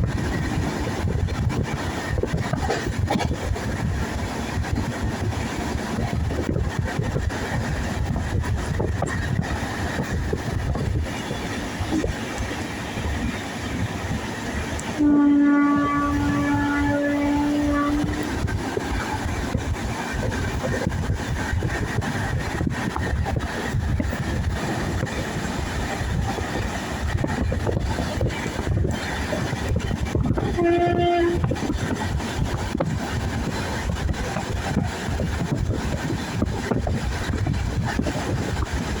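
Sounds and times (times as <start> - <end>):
train rumbling on rails: 0.0 - 39.0
train horn: 14.8 - 18.6, 30.2 - 31.8.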